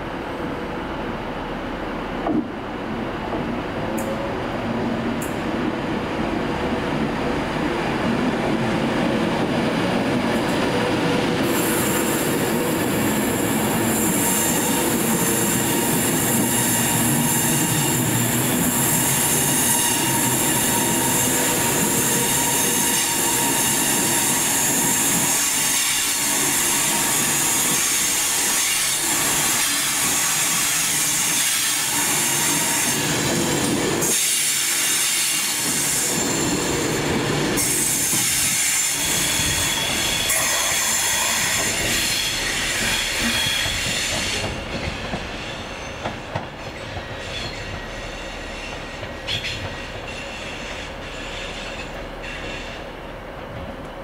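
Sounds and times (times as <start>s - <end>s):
train running noise: 0.0s - 54.0s
wheels squealing on rails: 10.4s - 53.1s.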